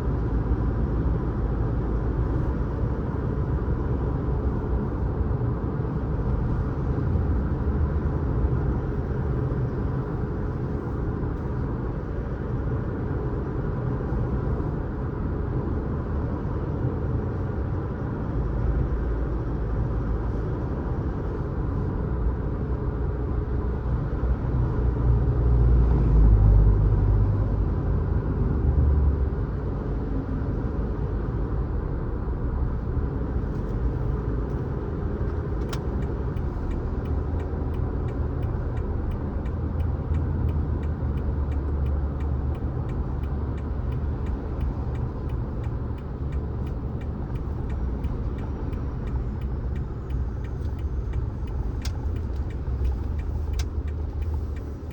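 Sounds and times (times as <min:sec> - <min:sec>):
car engine and tyre rumble: 0:00.0 - 0:54.9
faint regular ticking: 0:35.7 - 0:54.9
click: 0:43.2 - 0:54.9.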